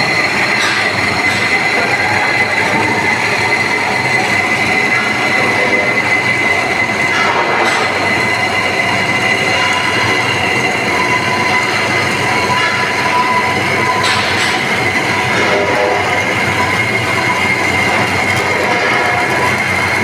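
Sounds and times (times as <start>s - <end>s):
band saw cutting metal pipe: 0.0s - 20.0s.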